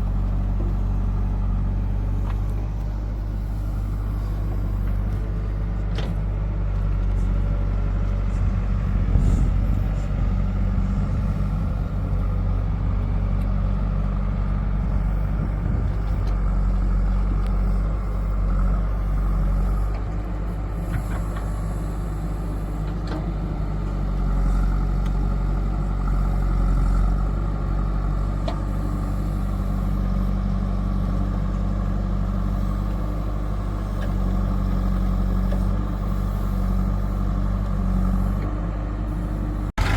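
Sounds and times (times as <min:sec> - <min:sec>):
heavy diesel engines running: 0:00.0 - 0:39.9.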